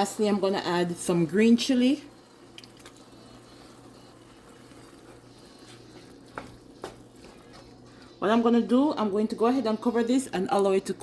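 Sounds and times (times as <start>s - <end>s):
sauce bubbling in a pot: 0.2s - 8.2s.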